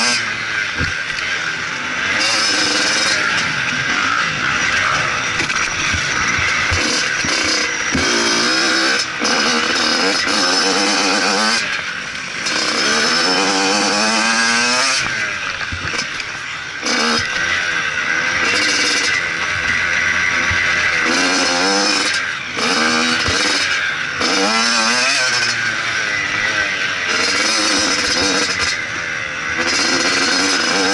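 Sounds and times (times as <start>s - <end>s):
motocross bike engine revving: 0.0s - 30.9s.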